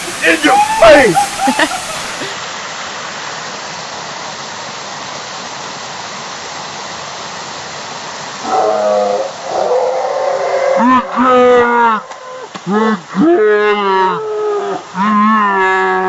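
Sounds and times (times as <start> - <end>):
long pitched call: 0.0 - 2.3
waterfall rushing: 0.0 - 16.0.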